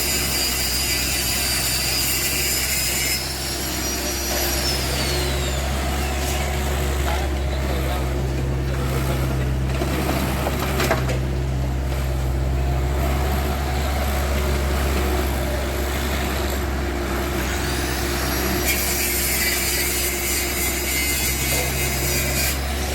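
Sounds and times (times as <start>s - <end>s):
heavy diesel engine droning: 0.0s - 22.9s.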